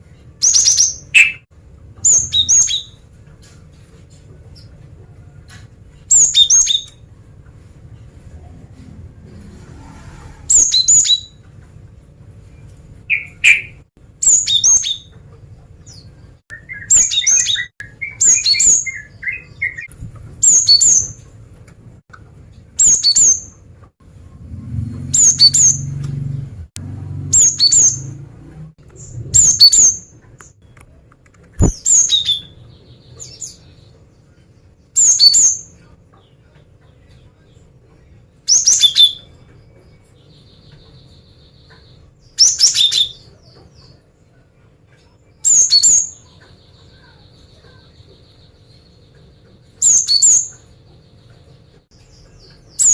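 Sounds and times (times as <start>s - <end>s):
bird calling high-pitched: 0.4s - 3.0s, 13.1s - 15.1s, 27.3s - 28.2s, 29.0s - 30.1s.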